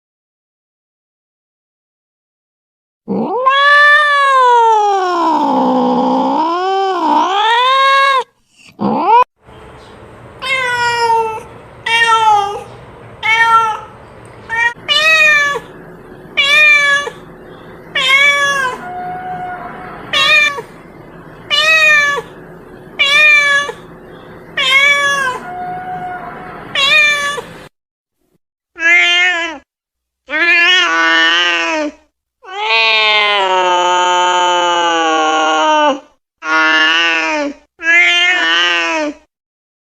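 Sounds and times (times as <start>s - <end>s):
cat meowing: 3.1s - 5.8s, 10.4s - 13.9s, 14.5s - 15.8s, 16.4s - 17.3s, 17.9s - 20.8s, 21.5s - 22.4s, 23.0s - 23.9s, 24.6s - 27.5s.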